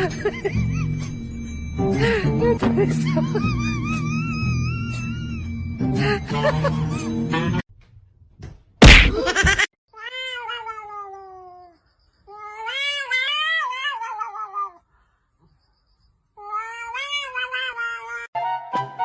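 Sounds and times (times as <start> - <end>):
cat yowling: 10.0 - 14.8, 16.4 - 18.3.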